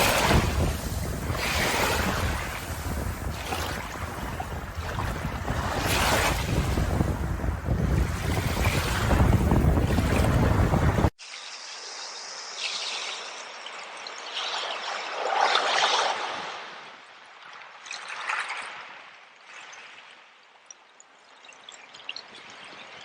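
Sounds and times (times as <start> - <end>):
surf and wind rushing: 0.0 - 11.2
stream trickling and splashing: 0.0 - 23.0.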